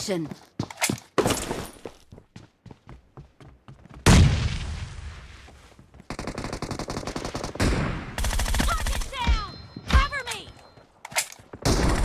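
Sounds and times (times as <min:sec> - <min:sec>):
rapid automatic gunfire: 0:06.1 - 0:09.1.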